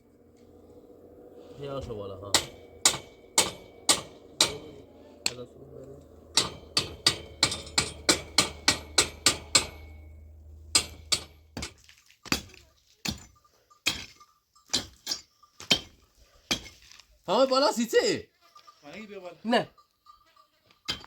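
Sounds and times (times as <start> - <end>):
low hum: 0.0 - 11.9.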